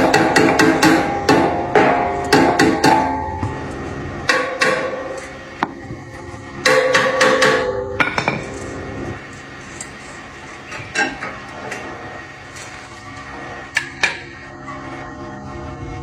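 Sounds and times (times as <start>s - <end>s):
hammer striking metal: 0.0s - 5.8s, 6.6s - 8.5s.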